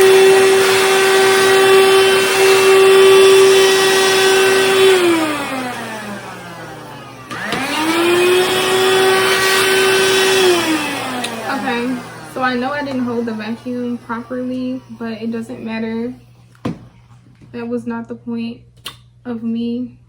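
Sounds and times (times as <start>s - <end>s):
handheld vacuum motor whine: 0.0s - 17.2s.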